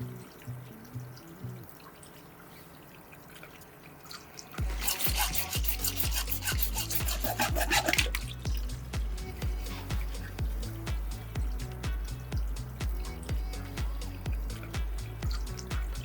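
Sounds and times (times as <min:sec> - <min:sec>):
scratchy crackling: 0:04.6 - 0:08.4
background music with bass beat: 0:04.6 - 0:16.0.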